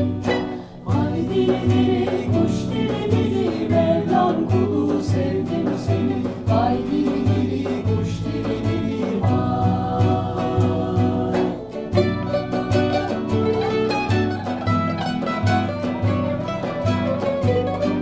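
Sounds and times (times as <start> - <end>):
voices singing in harmony: 0.0 - 12.5
plucked strings: 0.0 - 18.0
pulsing bass line: 0.9 - 18.0.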